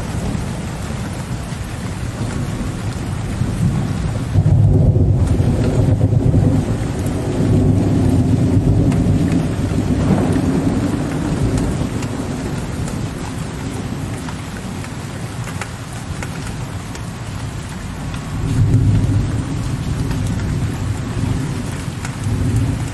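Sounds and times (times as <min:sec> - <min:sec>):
low rolling thunder: 0:00.0 - 0:15.4, 0:17.4 - 0:22.9
steady rain: 0:00.0 - 0:22.9.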